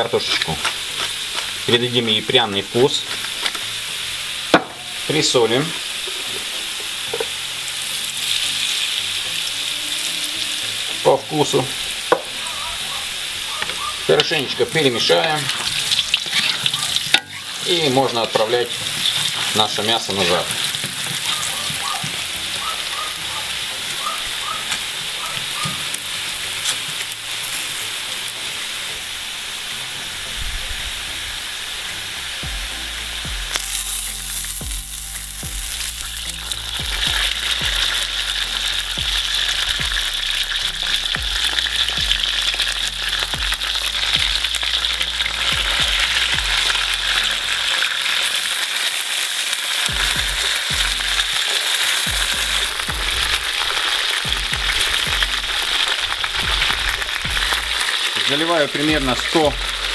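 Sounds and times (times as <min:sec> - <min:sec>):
potatoes sizzling in oil: 0:00.0 - 0:59.9
spatula stirring: 0:13.6 - 0:23.5.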